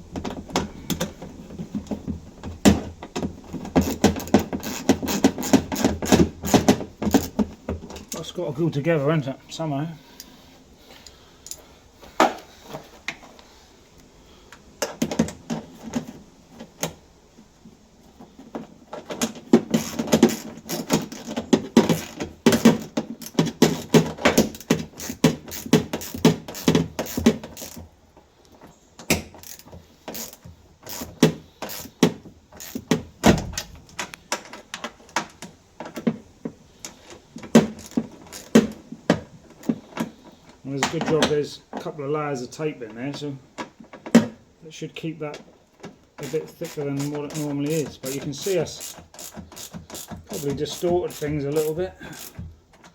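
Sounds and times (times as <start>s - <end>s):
ratchet spanner clicking: 3.8s - 7.3s, 21.9s - 27.8s, 29.4s - 31.9s, 32.6s - 32.9s, 37.8s - 38.6s, 46.2s - 52.4s.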